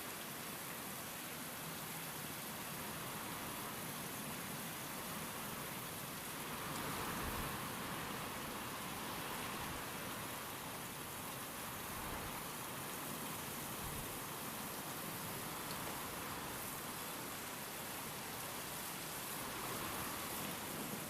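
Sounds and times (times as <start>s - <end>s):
steady rain: 0.0s - 21.0s
wind: 0.0s - 21.0s.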